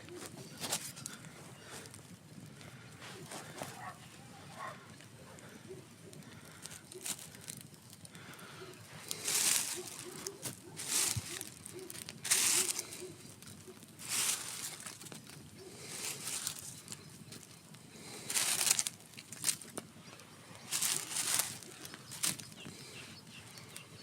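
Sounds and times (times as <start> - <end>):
campfire crackling: 0.0 - 24.0.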